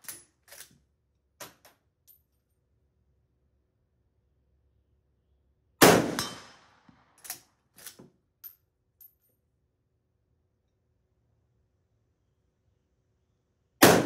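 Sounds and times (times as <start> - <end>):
rifle shot with echo: 5.8 - 6.8.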